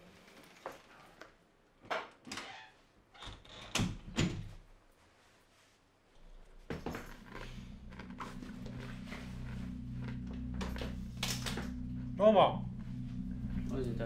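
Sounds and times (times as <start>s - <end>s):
low steady hum: 6.2s - 14.0s.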